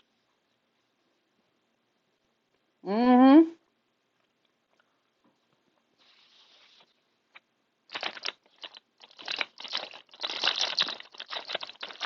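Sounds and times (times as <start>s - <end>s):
paper wrapper crinkling: 7.9s - 12.0s.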